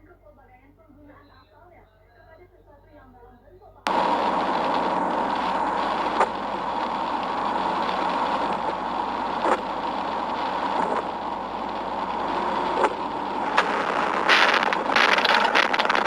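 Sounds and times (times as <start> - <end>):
vehicle road and engine noise: 3.9 - 16.0.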